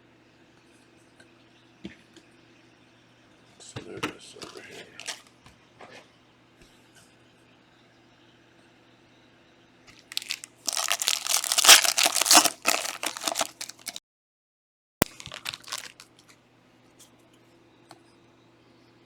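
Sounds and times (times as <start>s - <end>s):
plastic wrapping tearing and crinkling: 5.0s - 5.3s, 10.0s - 14.0s, 15.0s - 16.3s.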